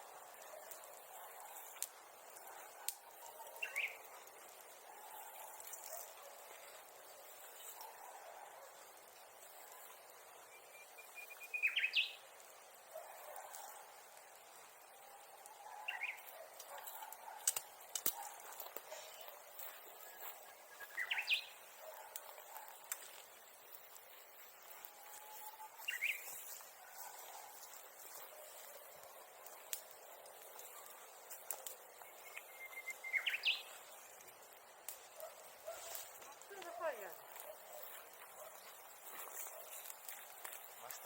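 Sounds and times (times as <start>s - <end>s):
sharp clicks: 17.4s - 18.9s.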